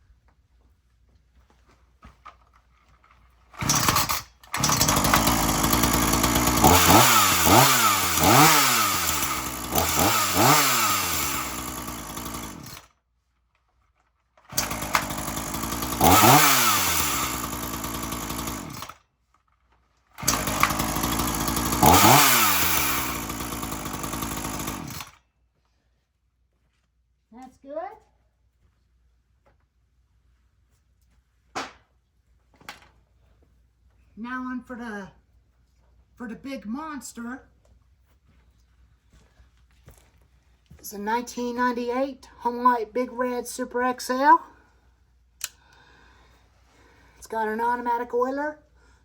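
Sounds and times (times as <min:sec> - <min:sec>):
chainsaw revving: 0:03.6 - 0:12.9, 0:14.5 - 0:19.0, 0:20.2 - 0:25.2.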